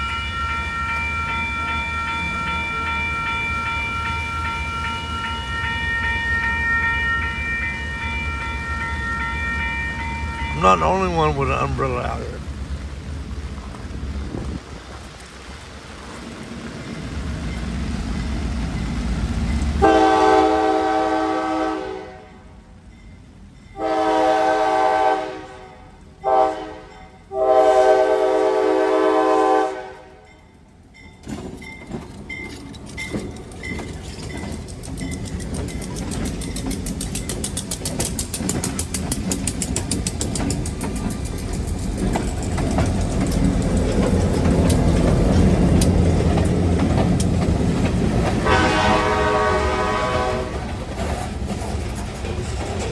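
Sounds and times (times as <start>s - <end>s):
locomotive engine rumble: 0.0s - 21.4s, 30.7s - 52.9s
locomotive horn blasts: 19.8s - 22.4s, 23.8s - 30.2s, 48.4s - 50.7s
wheels clicking over rail joints: 29.6s - 52.9s.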